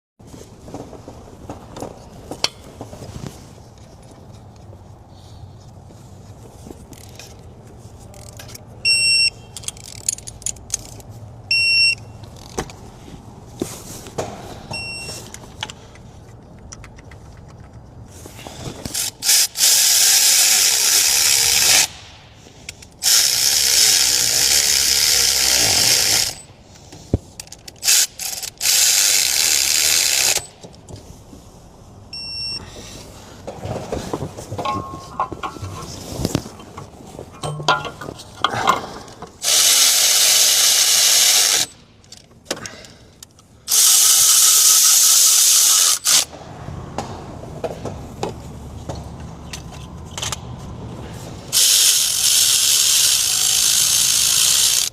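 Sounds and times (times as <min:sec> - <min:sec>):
short electronic beeps: 0:08.8 - 0:09.5, 0:11.5 - 0:12.2, 0:32.1 - 0:32.6.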